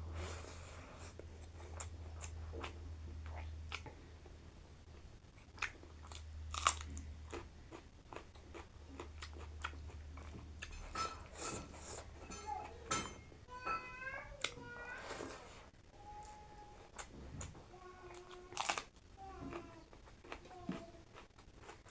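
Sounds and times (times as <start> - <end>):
chewing and biting: 5.4 - 10.8, 19.9 - 21.9.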